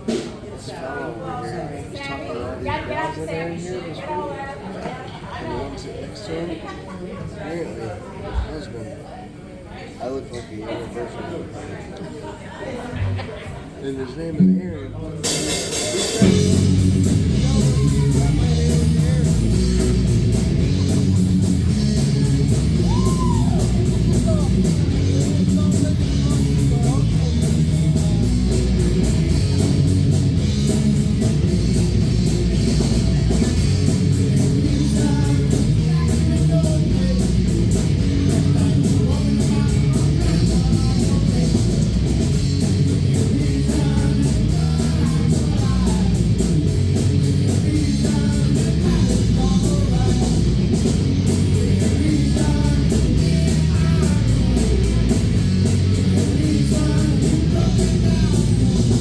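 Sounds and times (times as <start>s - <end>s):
live rock band playing: 0.0s - 0.5s, 15.2s - 59.0s
steady cymbal beat: 15.2s - 59.0s.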